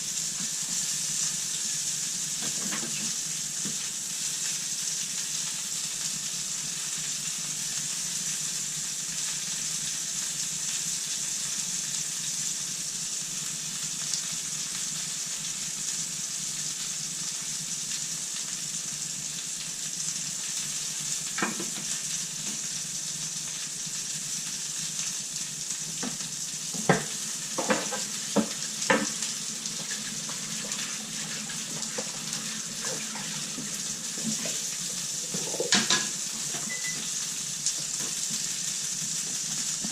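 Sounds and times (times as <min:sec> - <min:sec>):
food sizzling in a frying pan: 0:00.0 - 0:39.9
utensil knocking on pan: 0:26.8 - 0:29.2.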